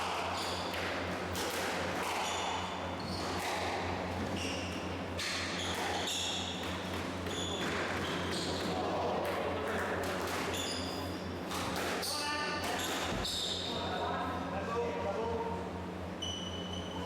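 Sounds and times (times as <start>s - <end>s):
squash ball hitting rackets and walls: 0.0s - 8.8s
court shoes squeaking: 0.2s - 8.8s, 10.3s - 14.0s, 16.1s - 17.0s.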